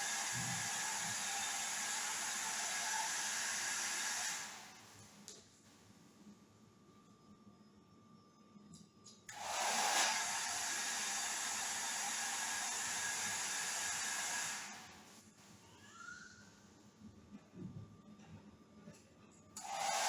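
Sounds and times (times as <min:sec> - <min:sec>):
hair dryer blowing: 0:00.0 - 0:04.8, 0:09.3 - 0:15.0, 0:19.6 - 0:20.0.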